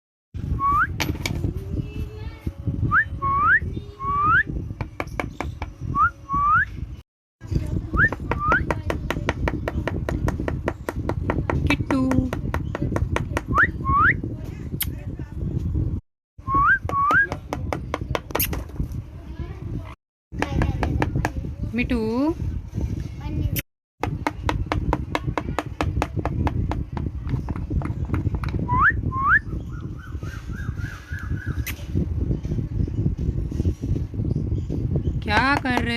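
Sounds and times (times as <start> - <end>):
parrot whistling and chirping: 16.4 - 17.4, 28.6 - 31.9.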